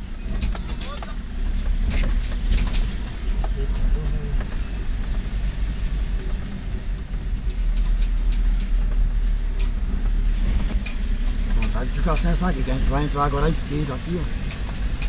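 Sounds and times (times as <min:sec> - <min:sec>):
vehicle low rumble: 0:00.0 - 0:15.0
light clicks and rattles: 0:06.3 - 0:12.5.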